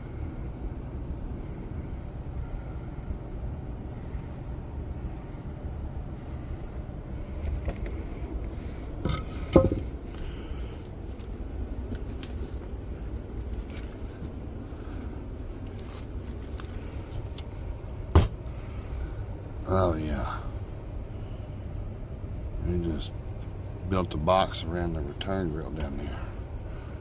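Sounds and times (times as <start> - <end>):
steady low rumble: 0.0 - 27.0
scraping and knocking: 9.0 - 10.0
loud knock: 9.5 - 9.9.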